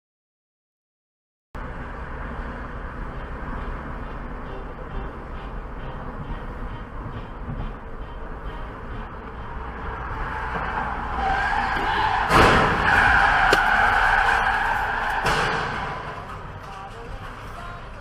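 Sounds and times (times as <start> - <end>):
car tyres skidding and squealing: 9.2 - 16.6.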